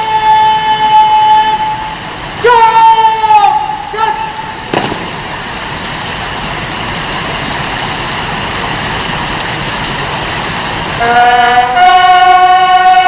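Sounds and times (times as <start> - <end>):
train horn blowing: 0.0 - 3.6, 11.0 - 13.0
train running: 0.0 - 13.0.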